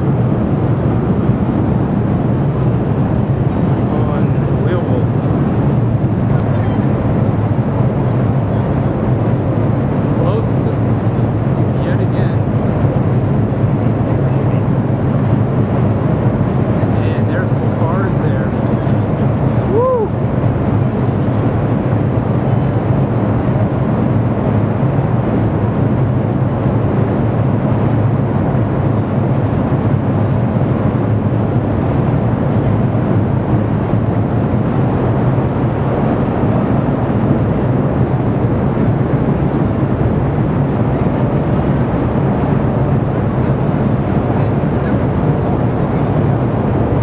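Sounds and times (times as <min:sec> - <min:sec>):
steam venting rumble: 0:00.0 - 0:47.0.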